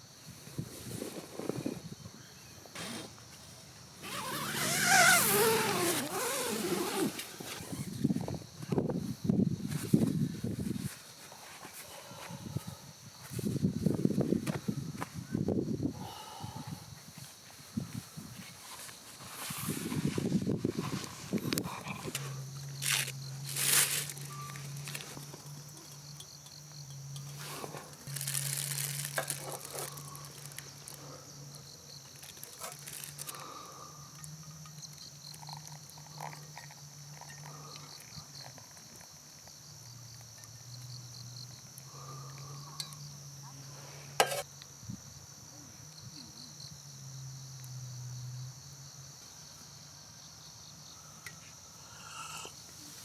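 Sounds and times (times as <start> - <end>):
crickets chirring: 0.0 - 53.0
small rustles: 17.1 - 26.0, 27.2 - 31.2, 32.0 - 33.6.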